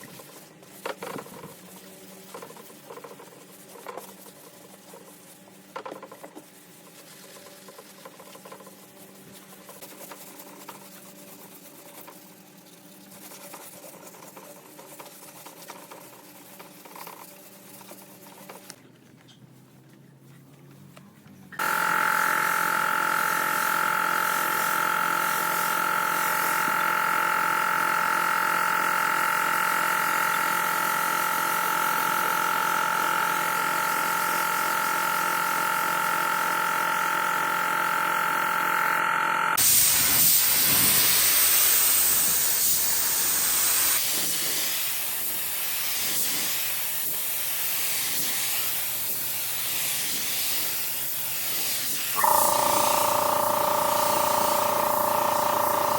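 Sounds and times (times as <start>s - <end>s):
machine humming and whining: 34.4s - 39.6s, 52.2s - 55.9s
compressed air hissing: 39.6s - 55.9s.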